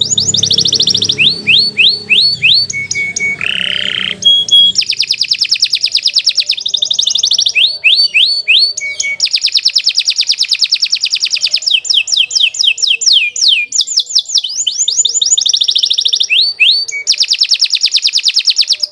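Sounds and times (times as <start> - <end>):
canary singing trills: 0.0 - 18.9.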